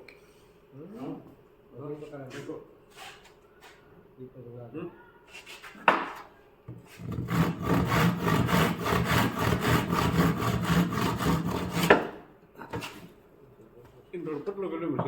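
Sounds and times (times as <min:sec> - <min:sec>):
wood rubbing strokes: 0:06.9 - 0:12.0
sharp knock on wood: 0:11.8 - 0:12.2.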